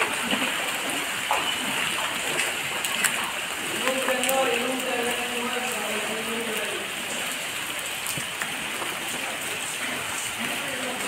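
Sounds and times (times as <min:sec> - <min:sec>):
rain on floodwater: 0:00.0 - 0:11.0.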